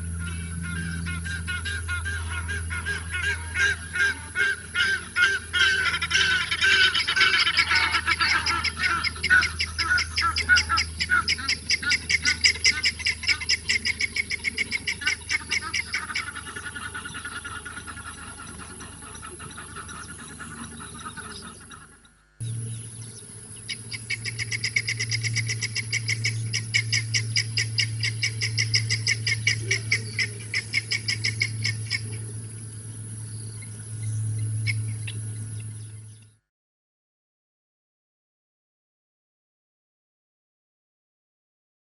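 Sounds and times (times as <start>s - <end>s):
birds honking: 0.0s - 36.2s
steady low hum: 0.0s - 36.5s.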